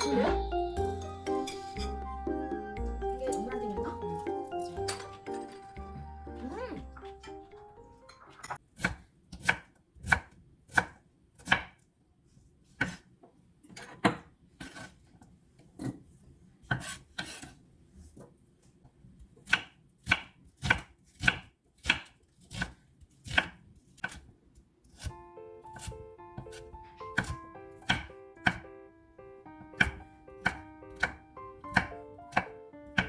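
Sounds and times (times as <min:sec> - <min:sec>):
knife chopping on cutting board: 0:08.8 - 0:11.8, 0:12.8 - 0:13.1, 0:16.6 - 0:17.6, 0:19.4 - 0:24.3, 0:24.9 - 0:28.7, 0:29.7 - 0:33.0.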